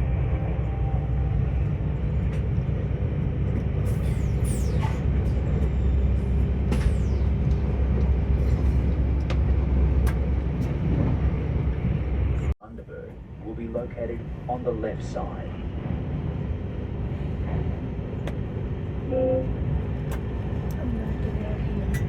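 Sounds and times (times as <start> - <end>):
train rumbling on board: 0.0 - 22.0
high falling-pitch sounds: 4.0 - 9.6.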